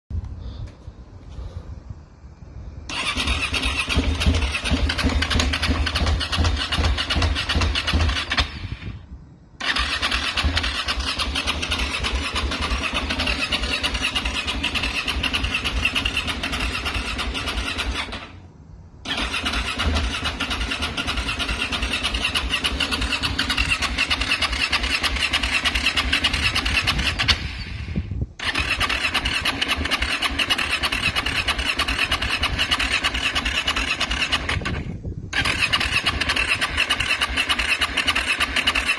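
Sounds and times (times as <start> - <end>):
motorcycle engine running unevenly: 3.8 - 8.5, 9.7 - 18.2.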